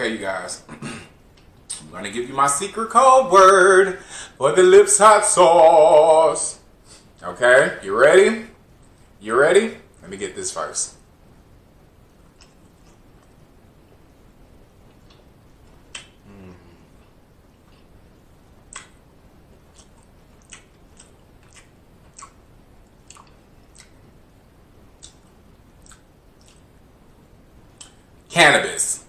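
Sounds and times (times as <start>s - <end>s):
wet mouth clicks and lip smacks: 12.4s - 13.3s, 15.9s - 16.2s, 18.7s - 19.0s, 19.7s - 24.0s, 25.0s - 26.7s
person humming: 16.2s - 17.1s.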